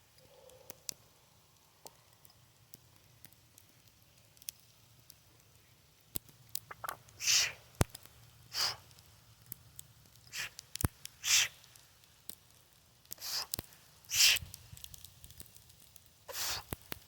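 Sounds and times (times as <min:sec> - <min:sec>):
sharp hissing breaths: 0:07.2 - 0:07.8, 0:08.5 - 0:09.0, 0:10.2 - 0:11.8, 0:13.1 - 0:14.6, 0:16.3 - 0:16.9.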